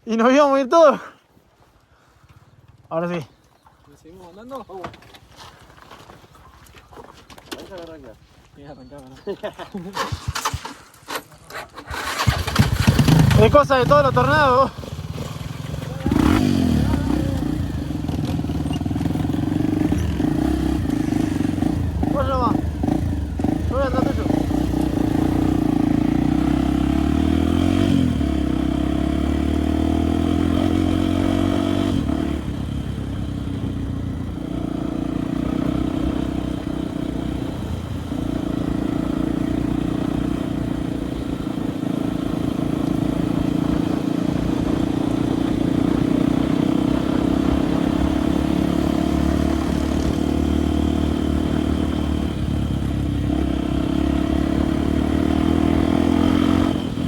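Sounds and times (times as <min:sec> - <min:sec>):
light clatter over rough surface: 0:03.6 - 0:08.2, 0:08.9 - 0:12.0
motorcycle engine running: 0:11.8 - 0:57.0.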